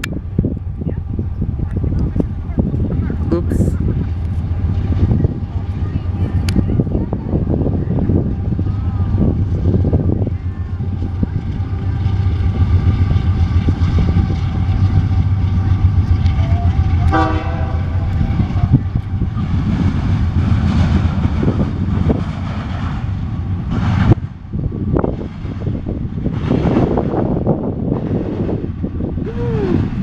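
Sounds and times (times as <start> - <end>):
freight train rumble: 0.0 - 30.0
locomotive air horn: 16.4 - 18.1.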